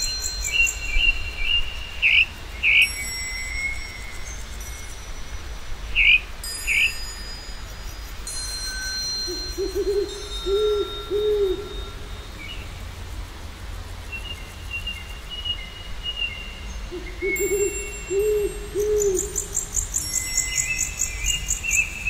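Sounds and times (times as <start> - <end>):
bird hooting: 9.3 - 12.1, 16.9 - 20.0.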